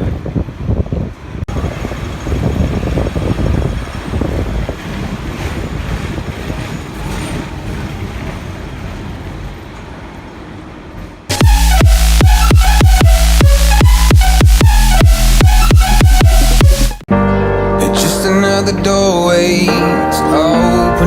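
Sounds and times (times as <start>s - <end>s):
wind buffeting microphone: 0.0s - 10.0s
tram rumbling along rails: 0.0s - 11.4s.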